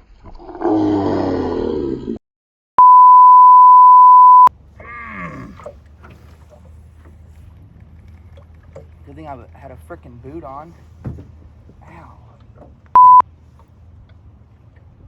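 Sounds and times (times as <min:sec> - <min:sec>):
censor bleep: 0:02.8 - 0:04.5, 0:13.0 - 0:13.2.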